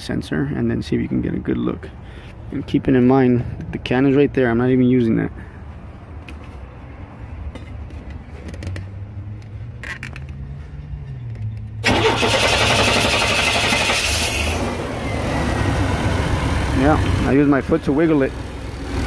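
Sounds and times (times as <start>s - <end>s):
car engine starting and running: 7.8s - 19.0s.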